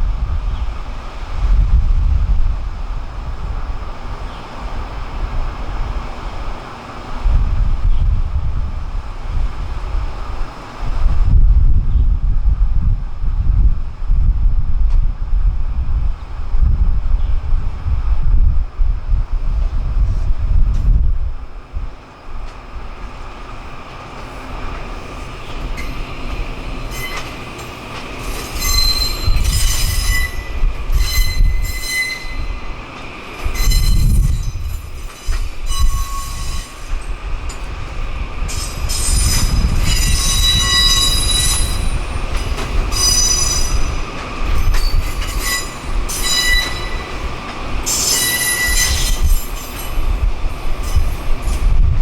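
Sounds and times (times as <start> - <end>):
moving train rumble: 0.0 - 52.0
train wheels squealing: 25.3 - 32.7, 33.4 - 37.1, 38.5 - 50.1, 50.8 - 51.7.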